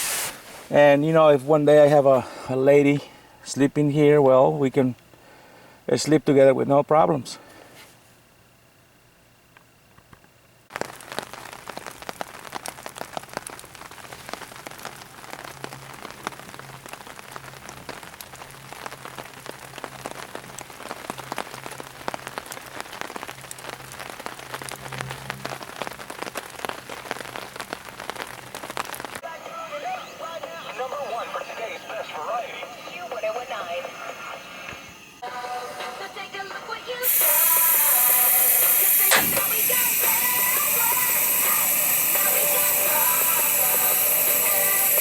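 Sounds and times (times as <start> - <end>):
rain pattering: 10.7 - 34.0, 36.0 - 45.0.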